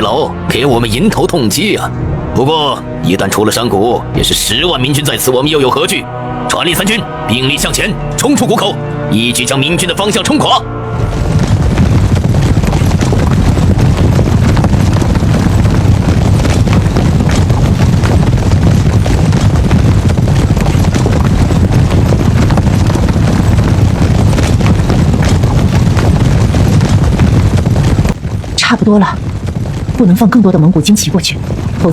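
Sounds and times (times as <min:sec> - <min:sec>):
horses galloping: 0:06.7 - 0:31.9.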